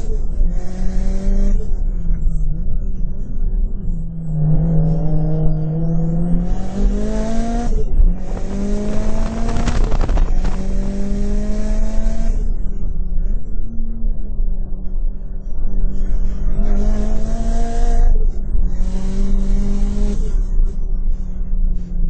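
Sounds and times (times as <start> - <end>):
car engine accelerating: 0.0 - 13.3, 16.0 - 22.0.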